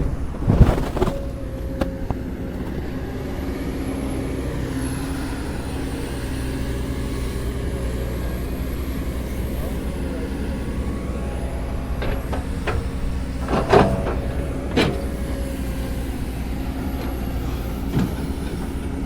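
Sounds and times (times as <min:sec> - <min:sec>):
diesel engine droning: 0:00.0 - 0:19.0.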